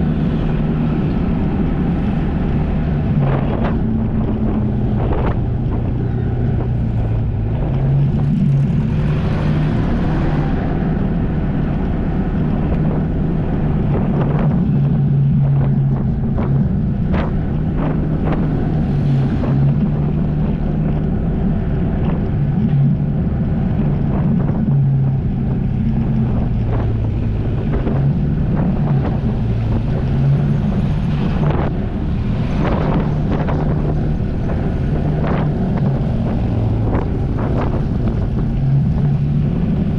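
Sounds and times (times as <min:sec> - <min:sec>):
jet ski engine running: 0:00.0 - 0:39.9
water slapping: 0:00.0 - 0:39.9
wind buffeting microphone: 0:00.0 - 0:39.9.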